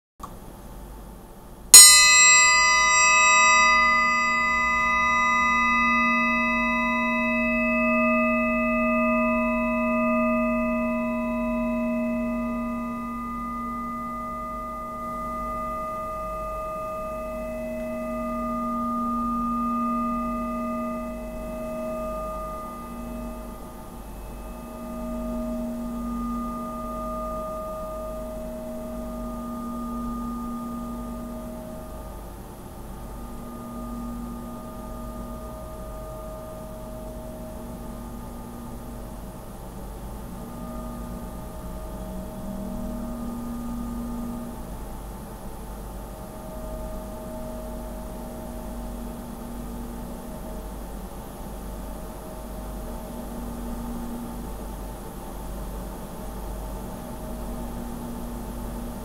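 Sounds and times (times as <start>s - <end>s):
steel blade struck and ringing: 1.8s - 24.8s.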